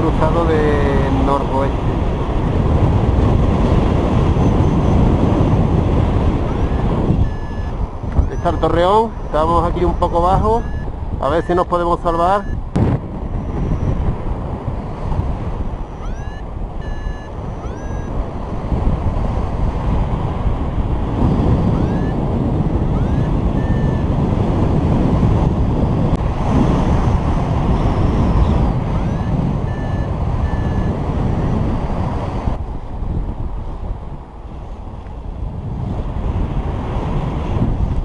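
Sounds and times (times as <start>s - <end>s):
wind rushing over microphone: 0.0s - 38.0s
rising electronic beeps: 6.5s - 11.6s, 12.2s - 12.6s, 13.4s - 14.0s, 15.8s - 18.1s, 21.7s - 22.2s, 22.9s - 24.1s, 29.0s - 31.5s.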